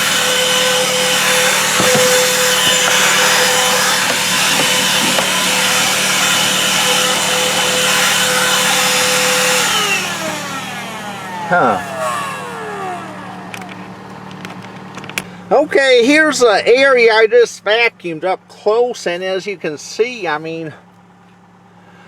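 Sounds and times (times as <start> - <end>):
handheld vacuum motor whine: 0.0 - 15.5.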